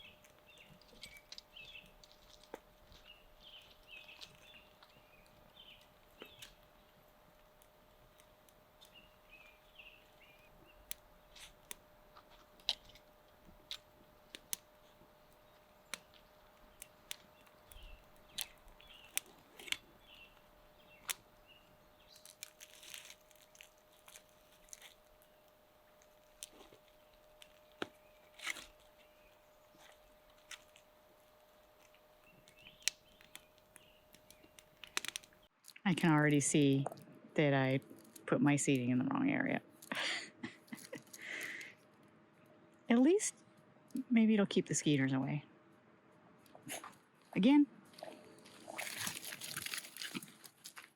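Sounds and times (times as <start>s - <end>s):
bird chirps: 0.0s - 2.2s, 3.0s - 6.7s, 8.8s - 11.4s, 15.4s - 22.4s, 32.1s - 35.5s
campfire snapping and popping: 0.0s - 37.1s, 47.9s - 50.9s.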